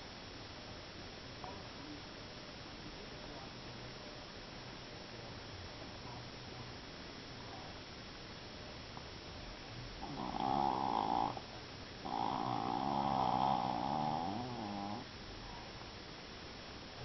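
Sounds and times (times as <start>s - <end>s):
dog snoring: 10.0s - 15.1s.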